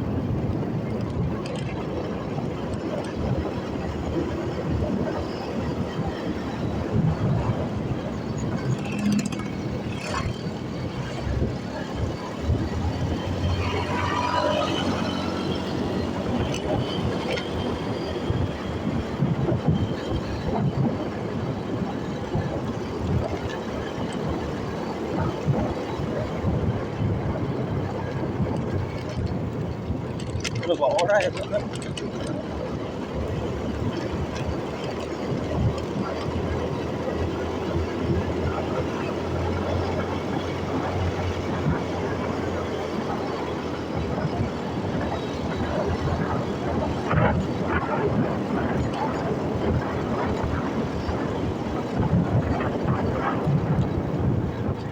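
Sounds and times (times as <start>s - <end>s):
motorcycle engine running: 0.0s - 30.6s
road noise: 0.0s - 54.9s
wind rushing over microphone: 0.0s - 54.9s.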